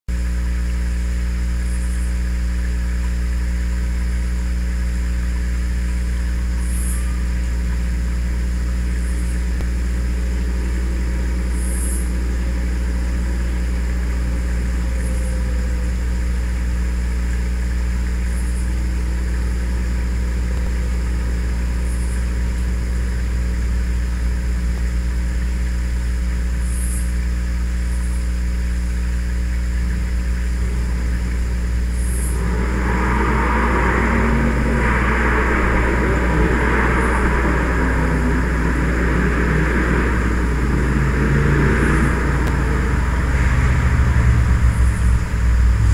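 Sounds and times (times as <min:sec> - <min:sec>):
vehicle engine idling: 0:00.0 - 0:45.9
faint high chirps: 0:06.6 - 0:07.7.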